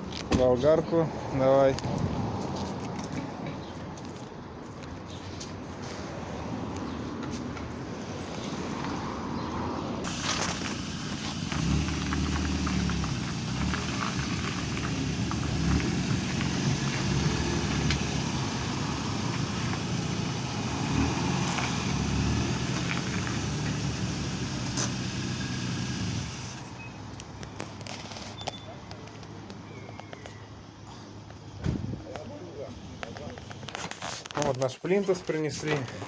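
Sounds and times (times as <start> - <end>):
vehicle engine running: 10.1 - 26.7.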